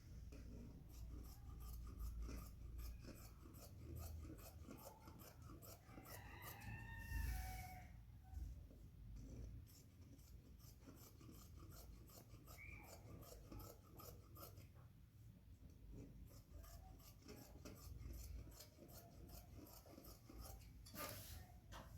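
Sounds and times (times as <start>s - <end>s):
scissors snipping cloth: 10.2s - 14.6s.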